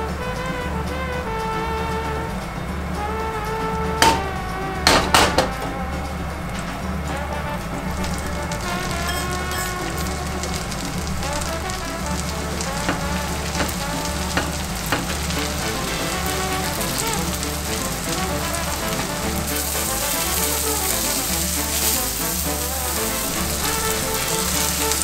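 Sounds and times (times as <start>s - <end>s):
background music: 0.0s - 25.0s
mushrooms sizzling in butter: 7.2s - 25.0s.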